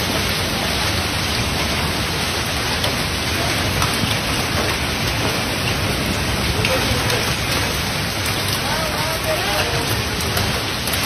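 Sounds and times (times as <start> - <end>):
torrential rain: 0.0 - 11.0.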